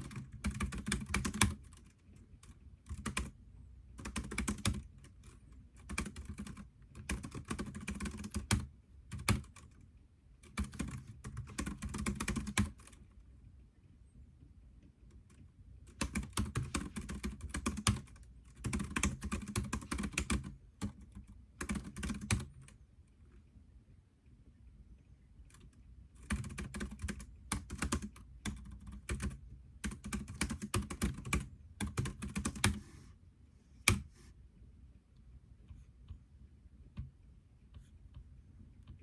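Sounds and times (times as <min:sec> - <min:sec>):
typing on computer keyboard: 0:00.0 - 0:03.4, 0:04.0 - 0:09.7, 0:10.4 - 0:13.0, 0:15.9 - 0:22.8, 0:25.5 - 0:32.8, 0:33.9 - 0:34.1.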